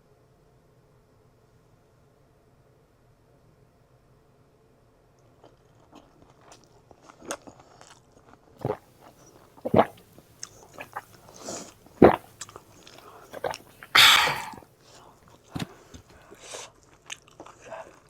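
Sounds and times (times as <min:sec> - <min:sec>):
chewing and crunching: 0:05.4 - 0:14.6, 0:15.4 - 0:18.0
mouth clicks and smacks: 0:09.6 - 0:14.6.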